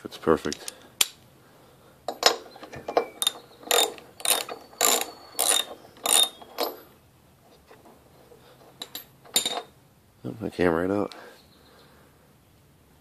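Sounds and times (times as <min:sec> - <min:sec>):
socket wrench ratchet clicking: 0:03.2 - 0:06.8.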